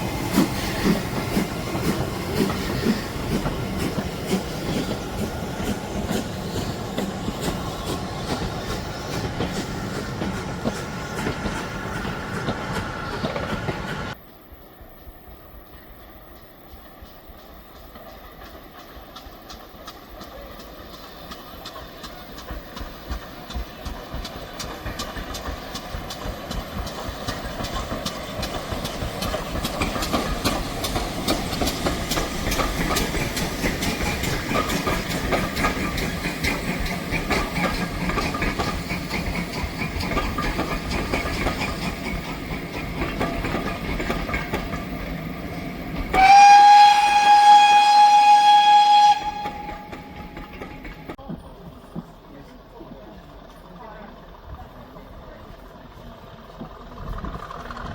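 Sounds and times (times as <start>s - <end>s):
train clacking on rails: 0.0s - 57.9s
steam locomotive whistle: 46.1s - 50.7s.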